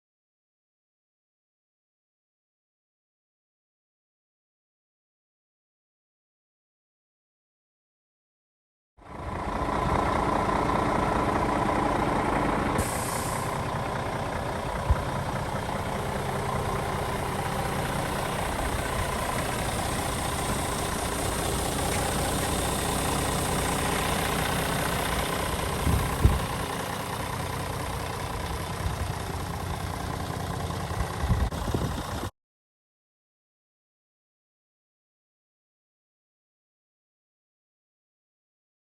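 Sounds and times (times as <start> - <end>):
diesel truck engine idling: 9.0 - 32.3
compressed air hiss: 12.8 - 13.7.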